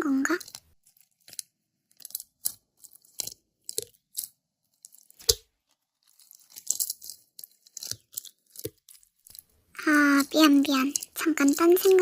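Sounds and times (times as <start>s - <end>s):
slime squelching and popping: 0.0s - 12.0s.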